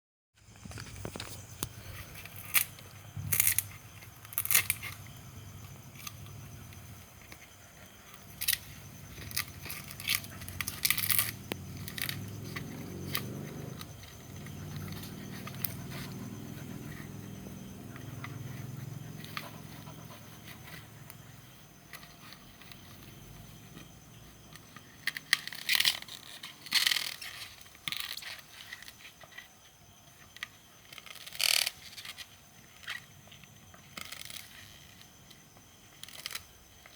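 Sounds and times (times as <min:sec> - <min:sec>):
dog gnawing coconut husk: 0:02.0 - 0:29.3.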